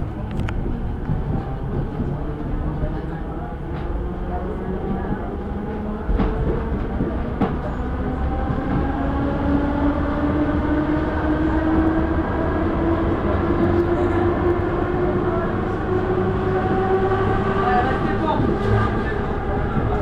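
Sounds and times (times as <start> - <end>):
electric train accelerating: 5.4 - 20.0.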